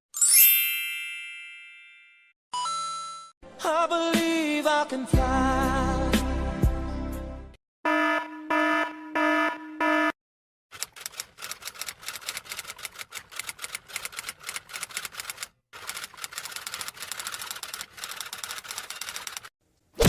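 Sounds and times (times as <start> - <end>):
typewriter keys clacking: 10.7 - 19.5.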